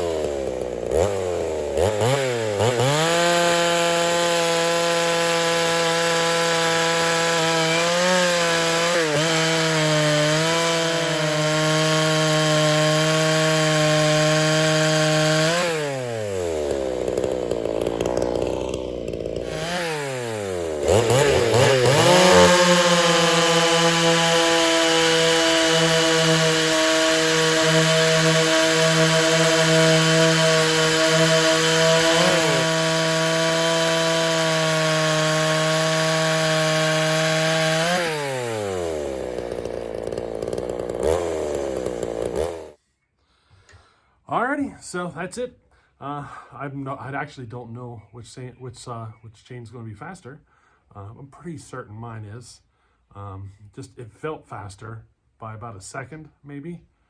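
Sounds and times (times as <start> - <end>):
chainsaw cutting wood: 0.0 - 42.8.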